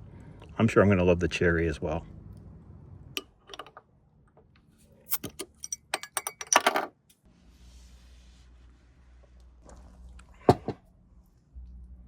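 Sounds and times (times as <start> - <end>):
bottle clicks and metallic clinks: 5.1 - 6.9.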